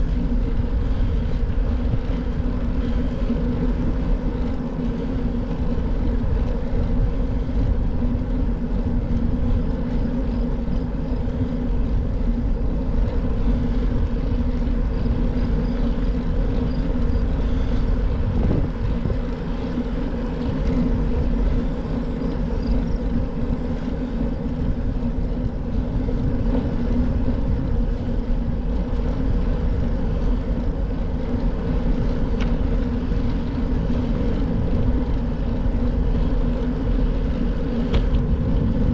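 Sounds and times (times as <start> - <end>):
bicycle tyres rolling on pavement: 0.0 - 38.9
low steady hum: 0.0 - 38.9
wind on microphone: 0.0 - 38.9.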